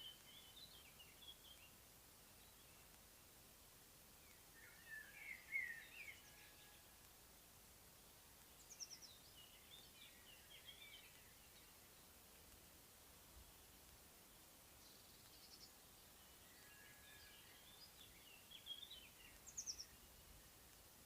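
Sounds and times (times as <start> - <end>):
steady low hiss: 0.0 - 21.0
songbird warbling: 4.3 - 6.4.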